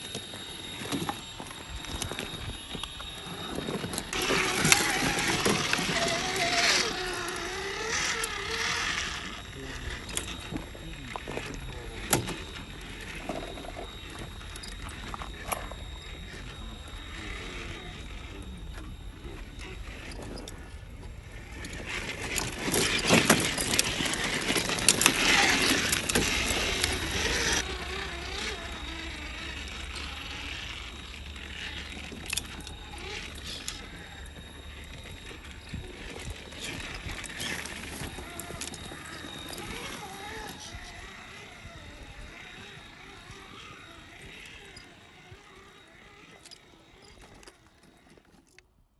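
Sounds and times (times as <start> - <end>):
crunching and clattering: 0.0 - 48.8
toy truck motor whine: 0.0 - 48.9.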